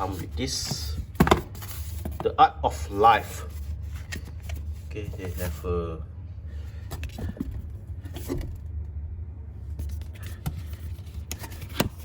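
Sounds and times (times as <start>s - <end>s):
cardboard packaging handled: 0.0s - 2.4s
low background hum: 0.0s - 12.0s.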